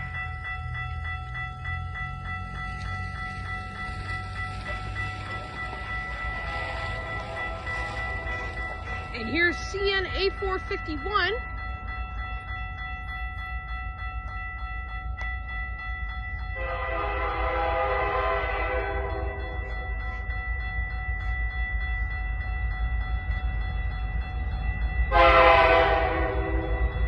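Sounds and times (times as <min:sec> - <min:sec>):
electronic crossing bell ringing: 0:00.0 - 0:27.0
locomotive horn blasts: 0:06.3 - 0:08.5, 0:16.6 - 0:19.4, 0:25.1 - 0:26.9.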